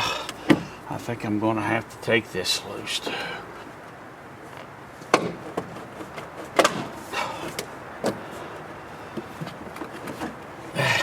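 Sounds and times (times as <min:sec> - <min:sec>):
plastic parts clunking and creaking: 0:00.2 - 0:00.8, 0:04.5 - 0:11.0.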